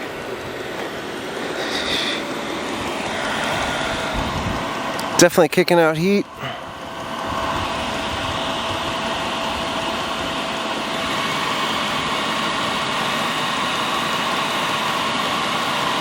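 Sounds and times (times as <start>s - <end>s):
thin even whine: 0.0s - 13.0s
air heater combustion and blower: 0.0s - 16.0s.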